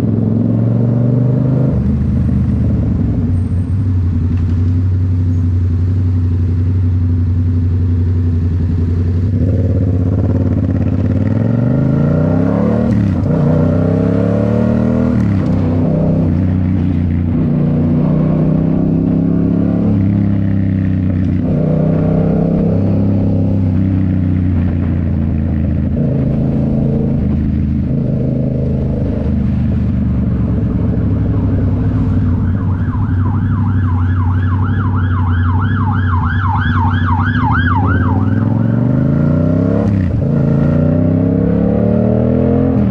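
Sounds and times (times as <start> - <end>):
motorcycle engine revving: 0.0 - 42.9
wailing emergency siren: 31.3 - 39.2.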